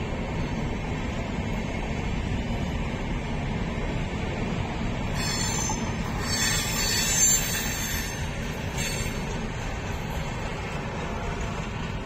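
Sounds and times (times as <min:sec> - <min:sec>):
train rumbling on rails: 0:00.0 - 0:12.0
high-pitched wheel squeal: 0:05.2 - 0:09.2.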